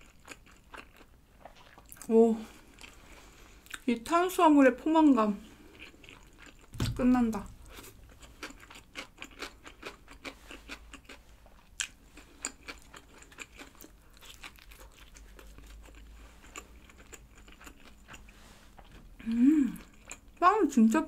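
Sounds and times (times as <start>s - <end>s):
chewing pizza crunches: 0.0s - 3.8s, 5.6s - 6.8s, 7.5s - 19.0s.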